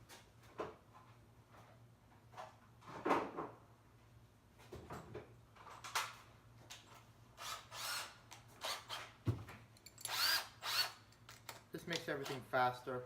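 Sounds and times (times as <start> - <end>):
tools knocking and clicking: 9.3 - 10.4, 11.1 - 12.4.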